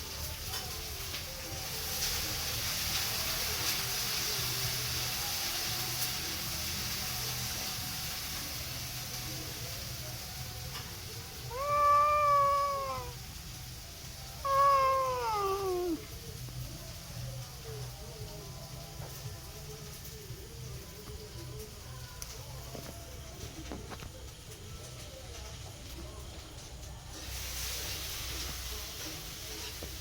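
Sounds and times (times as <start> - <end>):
cat meowing: 11.4 - 13.2, 14.4 - 16.1.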